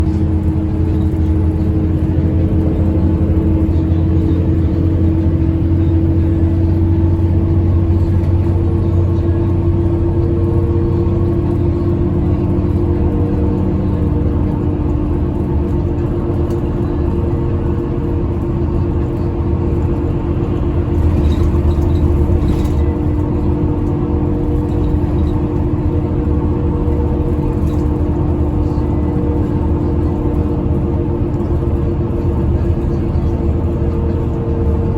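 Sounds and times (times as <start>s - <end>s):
bus engine droning: 0.0s - 34.9s.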